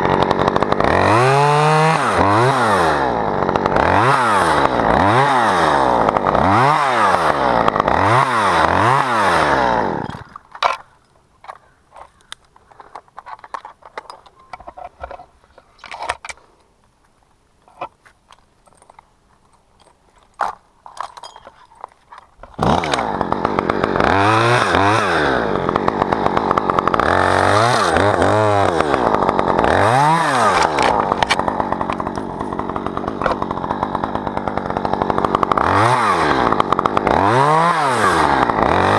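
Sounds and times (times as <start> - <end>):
chainsaw revving: 0.0 - 11.6, 22.4 - 38.9.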